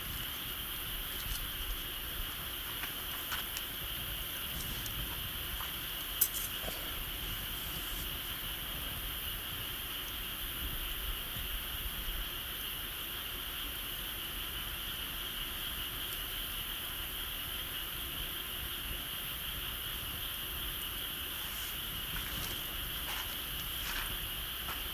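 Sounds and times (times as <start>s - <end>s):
wood fire crack: 0.0s - 8.6s
insects chirring: 0.0s - 24.9s.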